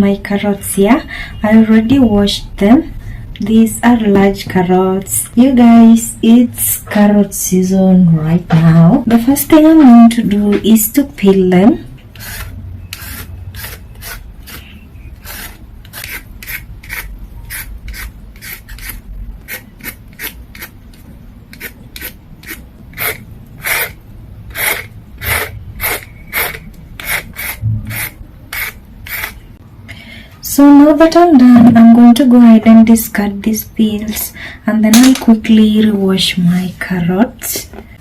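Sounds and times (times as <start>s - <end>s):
peeler scraping carrot: 12.1s - 29.5s.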